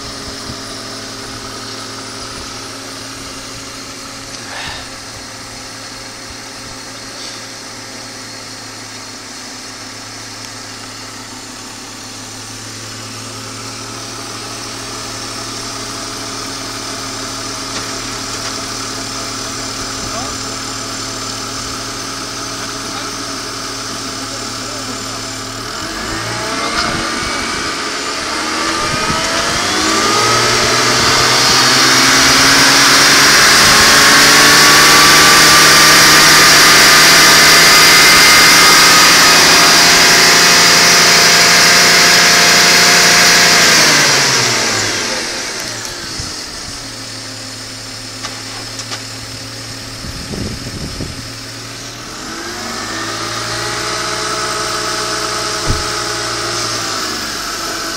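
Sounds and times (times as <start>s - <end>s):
car engine revving: 0.0s - 57.9s.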